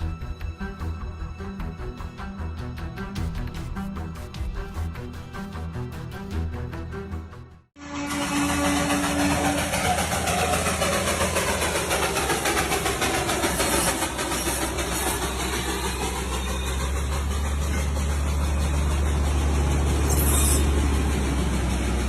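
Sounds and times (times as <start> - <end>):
heavy engine rumbling: 7.8 - 22.0.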